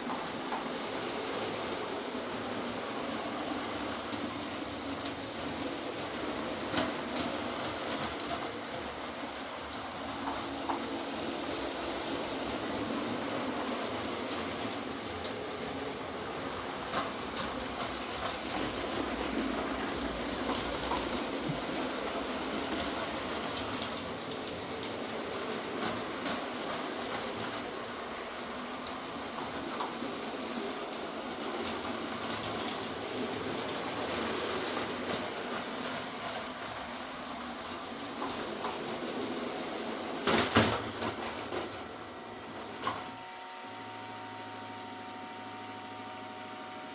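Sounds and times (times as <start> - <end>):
wheels clicking over track: 0.0 - 43.2
toy train rolling whir: 0.0 - 46.9
steady hum: 41.0 - 46.9.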